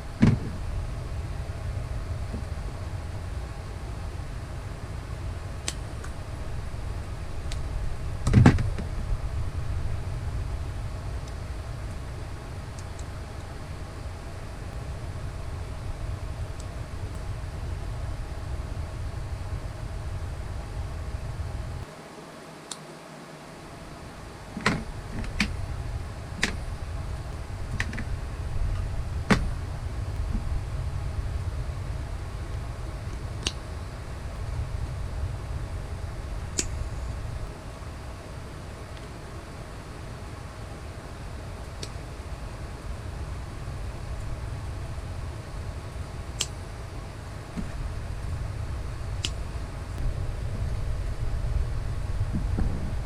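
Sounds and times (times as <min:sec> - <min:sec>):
steady low rumble: 0:00.0 - 0:22.0, 0:23.4 - 0:53.0
faint clicks: 0:32.5 - 0:33.7, 0:46.2 - 0:46.7
sharp clicks: 0:36.5 - 0:36.9.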